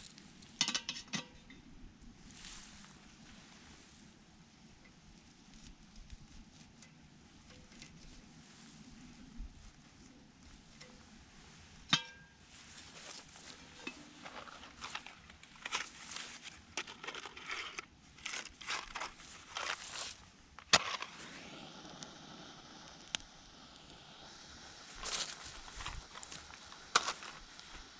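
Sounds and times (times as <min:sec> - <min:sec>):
rustling and crunching: 0:00.0 - 0:00.8, 0:02.2 - 0:04.1, 0:05.1 - 0:21.4, 0:24.8 - 0:27.9
sharp crack: 0:20.6 - 0:24.0.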